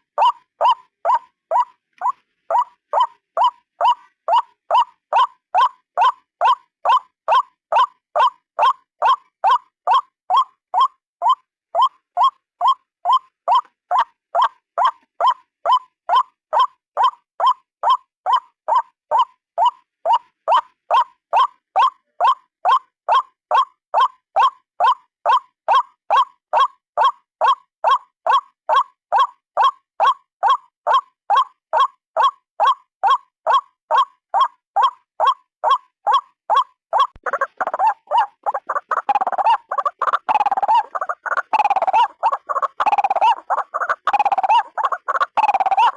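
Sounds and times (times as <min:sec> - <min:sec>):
waterhen calling: 0:35.2 - 0:45.9.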